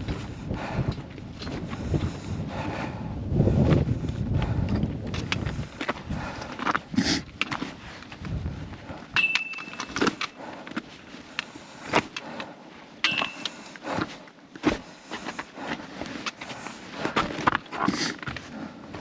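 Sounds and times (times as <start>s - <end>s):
footsteps on stepped trail: 0.0s - 19.0s
short metallic ring: 9.2s - 10.0s, 13.0s - 13.5s.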